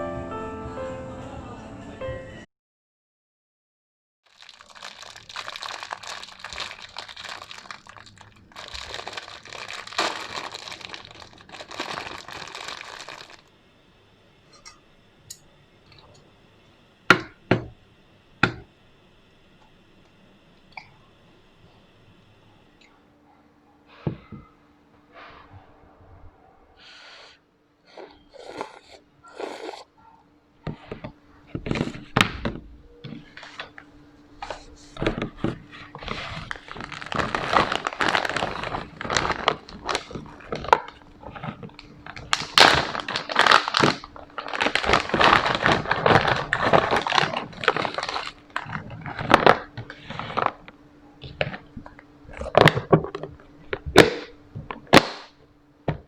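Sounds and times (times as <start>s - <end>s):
crinkling rustling: 4.3s - 13.6s, 30.7s - 56.0s.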